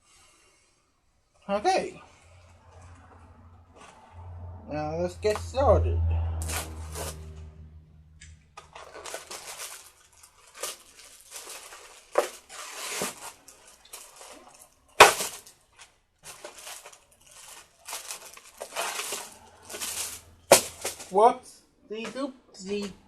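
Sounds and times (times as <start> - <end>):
objects rustling and clattering: 8.4 - 21.2.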